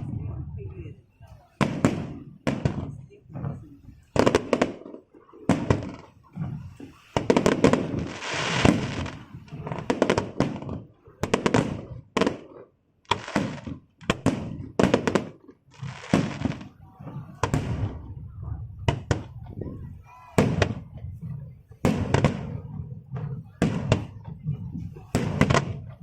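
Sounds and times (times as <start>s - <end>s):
fireworks bangs: 0.0s - 26.0s
fireworks hissing crackle: 1.4s - 12.5s, 13.1s - 18.0s.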